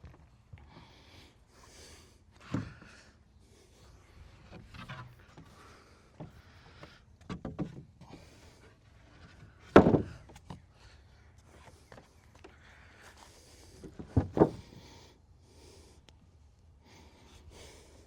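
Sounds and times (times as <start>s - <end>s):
wooden boards knocking: 9.7s - 10.2s.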